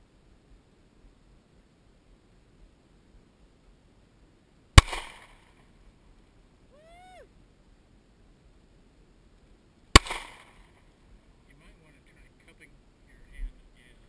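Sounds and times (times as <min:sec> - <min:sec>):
handgun shot with echo: 0:04.8 - 0:05.5, 0:10.0 - 0:10.7.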